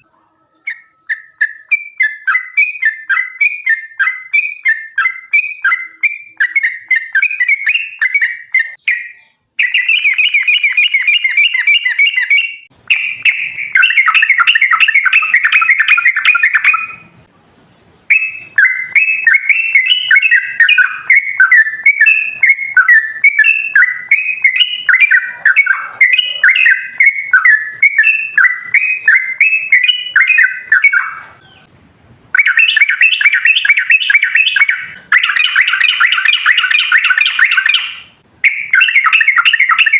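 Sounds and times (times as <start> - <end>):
bulbul singing chirped phrases: 0.0 - 31.4.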